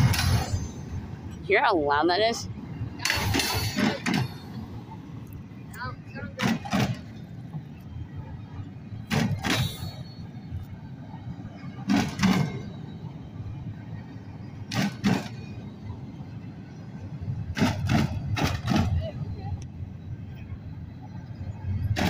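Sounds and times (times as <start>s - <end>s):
wheels clacking on track: 0.0s - 22.0s
wheels rumbling on rail: 0.0s - 22.0s.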